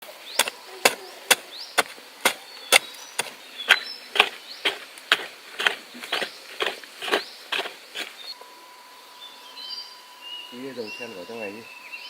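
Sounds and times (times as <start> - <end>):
sharp rhythmic knocks: 0.4 - 8.1.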